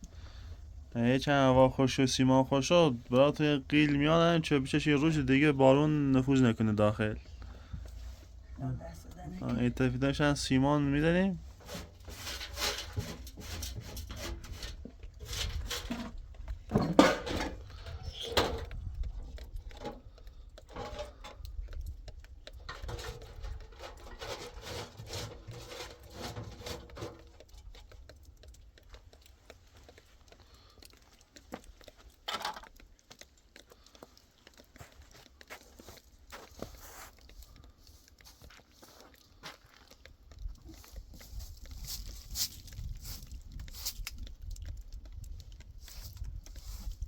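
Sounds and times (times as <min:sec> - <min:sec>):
objects knocking and scraping: 0:11.3 - 0:28.6, 0:29.2 - 0:38.2.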